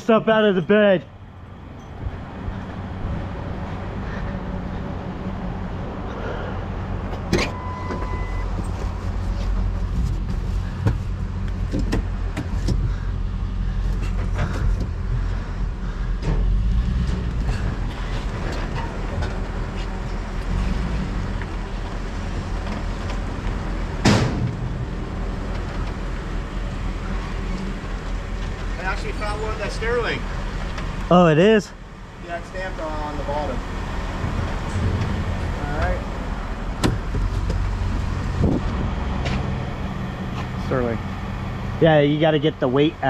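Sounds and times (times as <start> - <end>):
truck engine running: 0.0 - 43.0
loud bang: 24.0 - 25.0.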